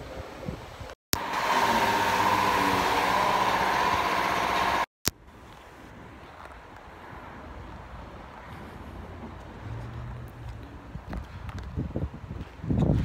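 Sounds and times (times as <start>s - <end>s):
quiet outdoor background: 0.0s - 13.0s
car engine running: 1.2s - 4.9s.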